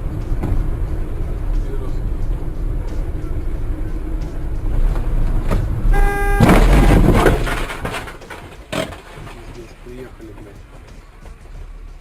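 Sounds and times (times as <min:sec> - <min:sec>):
car road rumble: 0:00.0 - 0:12.0
car collision crash: 0:05.5 - 0:09.5
car horn blast: 0:05.9 - 0:07.6.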